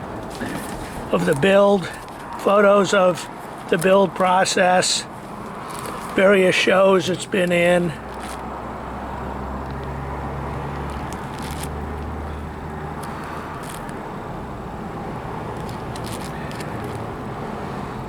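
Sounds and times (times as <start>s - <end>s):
binder pages turning: 5.3s - 6.2s, 8.0s - 8.4s, 10.8s - 12.1s, 13.0s - 14.0s, 15.5s - 17.1s.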